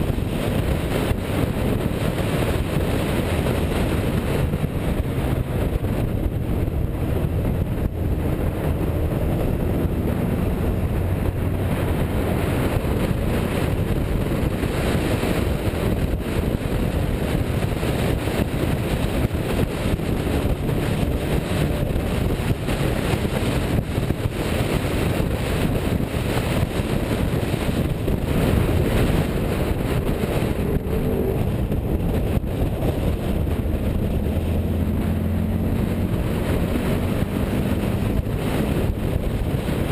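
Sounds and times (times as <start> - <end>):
car engine running: 0.0 - 39.9
road and wind noise: 0.0 - 39.9.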